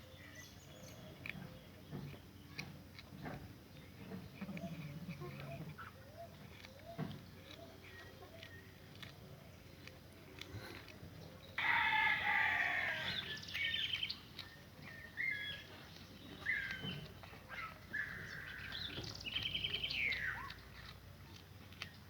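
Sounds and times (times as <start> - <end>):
animal calls: 4.4 - 10.9, 11.6 - 21.9.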